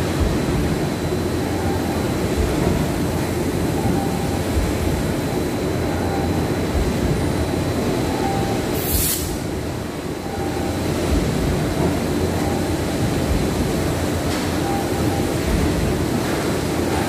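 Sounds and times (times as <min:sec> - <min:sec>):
loud mechanical rumble: 0:00.0 - 0:17.0
short hiss: 0:08.8 - 0:09.4.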